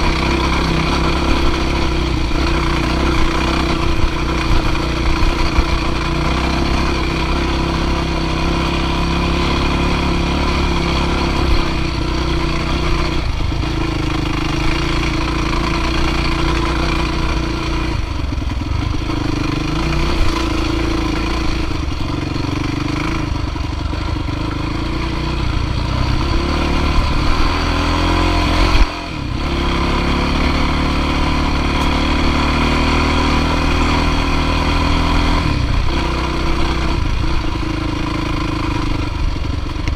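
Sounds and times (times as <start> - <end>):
dirt bike engine under throttle: 0.0 - 39.9.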